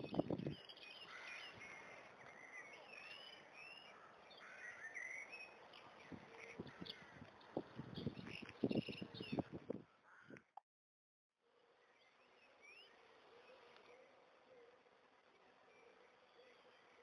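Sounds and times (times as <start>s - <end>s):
birds chirping and singing: 0.0s - 9.6s
faint steady hiss: 11.5s - 17.0s.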